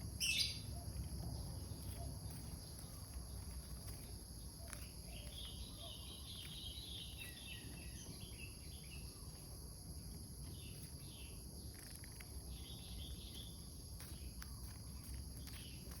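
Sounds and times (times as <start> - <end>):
bulbul calling: 0.0 - 0.9
insects trilling: 0.0 - 16.0.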